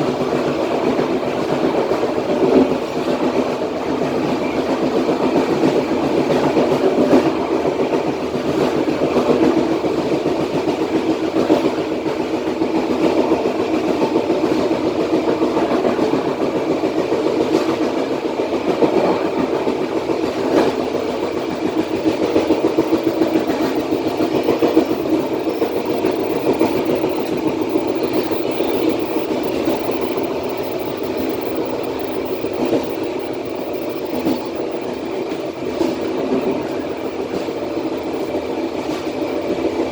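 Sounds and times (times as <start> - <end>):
track clicks: 20.1 - 39.9.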